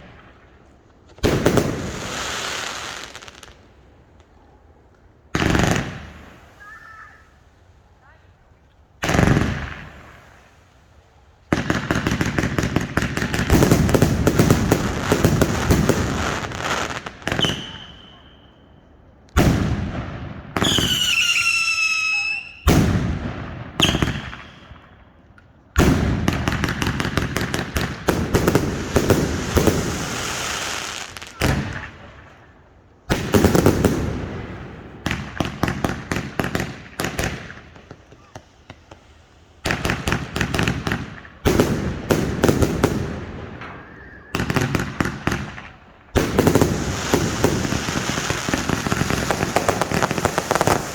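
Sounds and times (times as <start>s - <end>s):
fireworks bangs and crackling: 0.0s - 7.5s, 9.0s - 10.6s, 11.4s - 18.4s, 19.3s - 50.9s
firework whistles: 5.9s - 7.4s, 14.4s - 18.7s, 20.6s - 23.0s, 23.8s - 25.0s, 43.5s - 45.1s.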